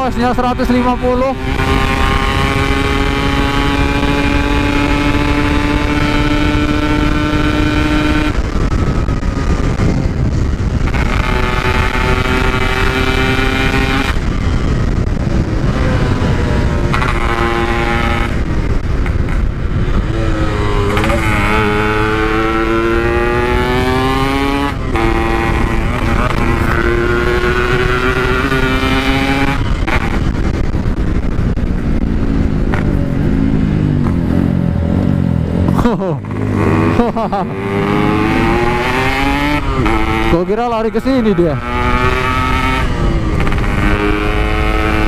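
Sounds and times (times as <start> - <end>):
two-stroke motorcycle engine revving: 0.0 - 45.0
wind and road rush: 0.0 - 45.0.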